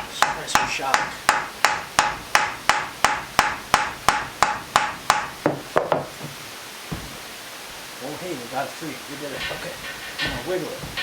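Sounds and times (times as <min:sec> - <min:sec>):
hammer tapping on metal: 0:00.0 - 0:06.1, 0:09.4 - 0:11.0.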